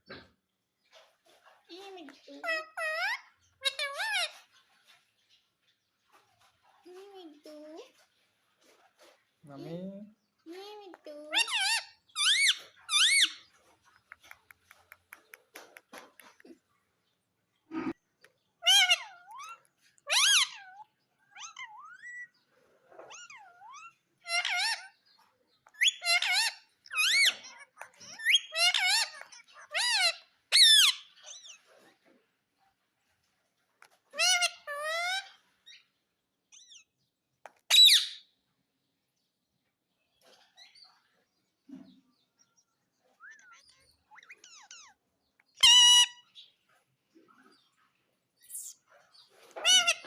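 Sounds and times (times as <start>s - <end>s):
parrot warbling calls: 11.3s - 13.5s, 18.6s - 22.3s, 23.1s - 25.0s, 25.8s - 31.6s, 34.1s - 35.8s, 45.6s - 46.3s, 49.6s - 50.0s.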